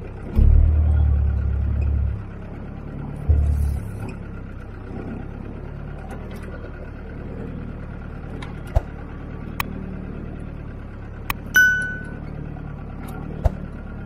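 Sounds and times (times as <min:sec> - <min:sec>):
vehicle engine running: 0:00.0 - 0:14.0
heavy low thump: 0:00.3 - 0:04.8.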